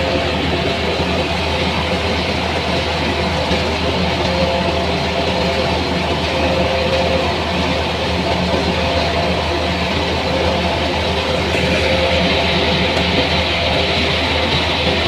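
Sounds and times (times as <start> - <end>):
heavy machine engine humming: 0.0 - 15.0
loud rushing noise: 10.9 - 15.0.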